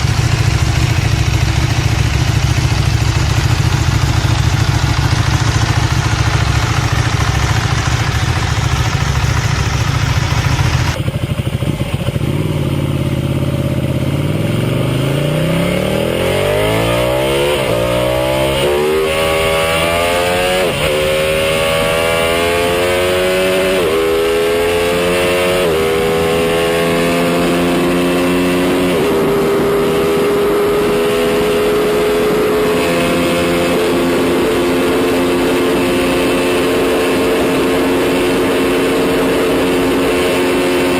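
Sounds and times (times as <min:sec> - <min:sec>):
low engine rumble: 0:00.0 - 0:14.1
motorcycle engine accelerating: 0:00.0 - 0:40.9.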